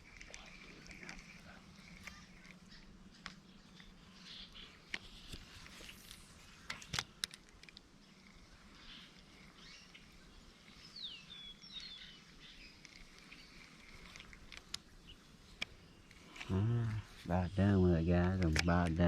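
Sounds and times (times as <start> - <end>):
bird calling: 0.0 - 6.1, 8.0 - 19.0
sharp clicks: 18.1 - 19.0.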